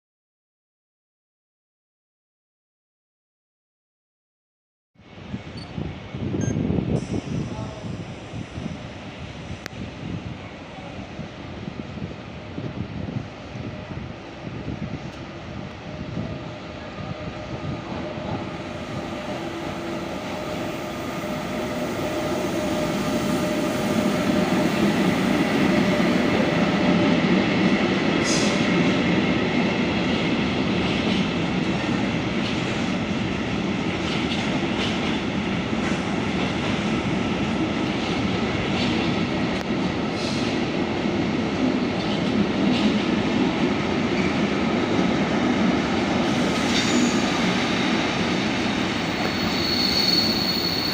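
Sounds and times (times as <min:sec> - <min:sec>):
train running on track: 0:05.0 - 0:50.9.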